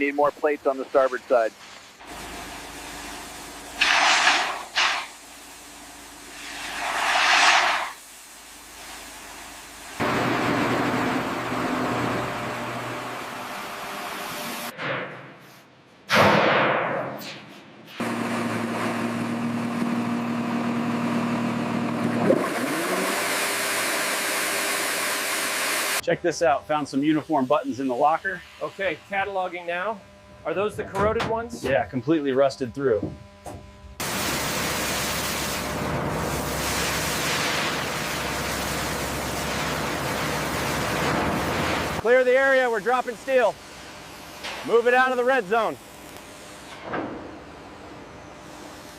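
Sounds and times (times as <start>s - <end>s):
mechanical hum with droning tone: 0.0s - 48.9s
steady rushing noise: 6.4s - 8.0s
loud whoosh: 6.5s - 8.0s.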